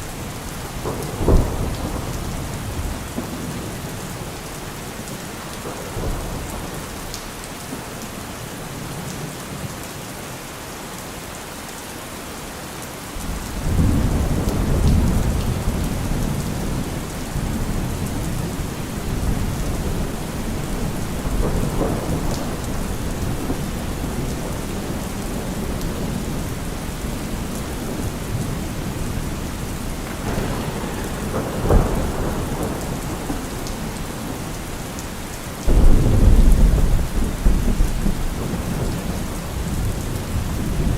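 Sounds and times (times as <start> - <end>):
thunder clap: 0.0 - 4.7, 13.2 - 40.9
thunder rumbling: 0.0 - 7.5, 13.2 - 40.9
steady rain: 0.0 - 40.9.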